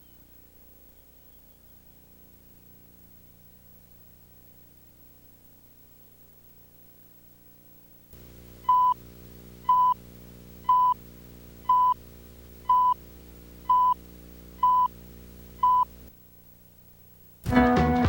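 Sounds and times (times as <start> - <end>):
electrical hum: 0.0 - 18.0
short electronic beeps: 8.7 - 9.0, 9.7 - 10.0, 10.7 - 11.0, 11.7 - 12.0, 12.7 - 13.0, 13.7 - 14.0, 14.6 - 14.9, 15.6 - 15.9.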